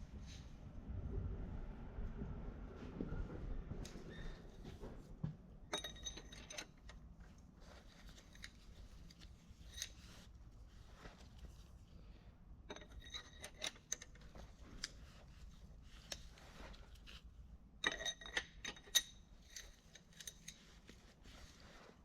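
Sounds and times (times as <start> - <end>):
metal tools and parts clinking: 5.7 - 7.0, 9.6 - 10.2, 12.7 - 14.3, 17.8 - 20.8.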